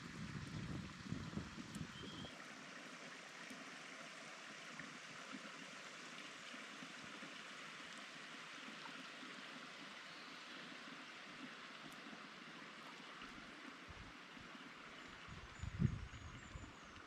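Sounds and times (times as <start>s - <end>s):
running water rushing: 0.0s - 17.0s
faint ticks: 11.4s - 12.2s.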